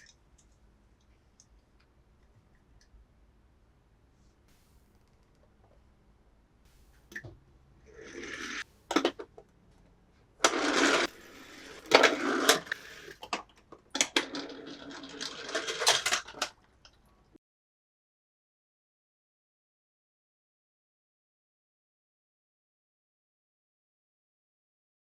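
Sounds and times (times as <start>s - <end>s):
plastic toys rustling and clattering: 7.9s - 17.1s.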